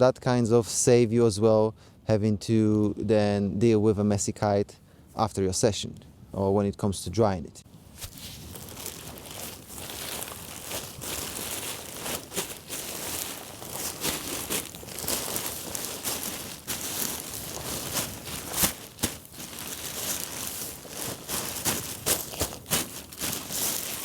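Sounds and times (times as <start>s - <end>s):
fabric crinkling and rustling: 7.9s - 24.0s.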